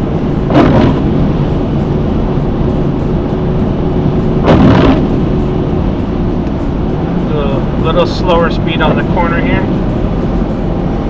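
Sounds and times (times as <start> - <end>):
car cabin road rumble: 0.0 - 11.0
windshield wiper swishing: 0.5 - 1.7, 4.1 - 5.4.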